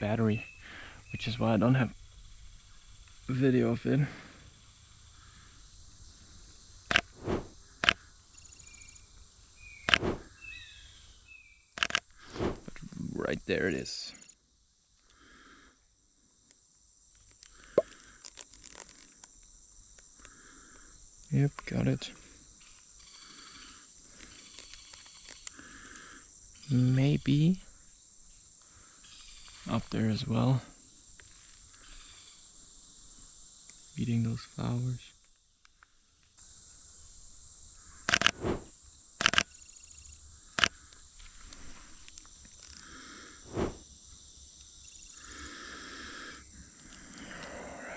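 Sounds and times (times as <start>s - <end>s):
insects droning: 0.0s - 47.9s
run of even ticks: 6.9s - 9.0s, 13.7s - 14.4s, 38.1s - 40.2s, 44.9s - 45.5s
sharp clicks: 6.9s - 9.0s, 13.7s - 14.4s
high-pitched insect drone: 8.4s - 9.0s, 13.7s - 14.4s, 39.4s - 40.2s, 44.8s - 45.7s
sharp click: 8.4s - 9.0s.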